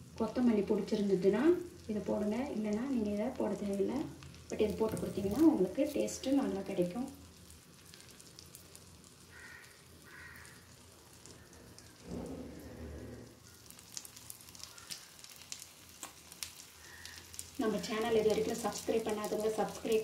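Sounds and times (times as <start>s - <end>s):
batter sizzling in oil: 0.0s - 20.0s
low rumble: 11.9s - 13.4s.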